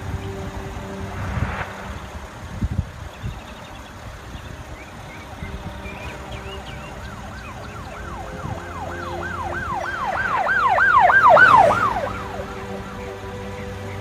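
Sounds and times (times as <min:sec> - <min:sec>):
emergency siren yelping: 0:06.5 - 0:13.8.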